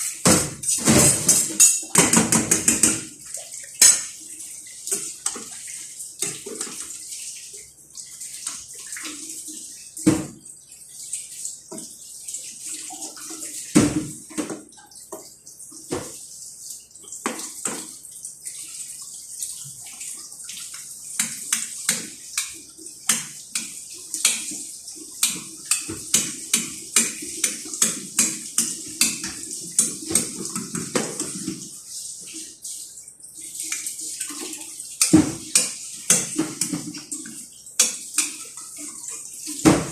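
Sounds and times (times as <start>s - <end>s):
utensils and dishes clinking: 0.0s - 3.1s, 3.8s - 4.2s
water splashing: 0.0s - 39.9s.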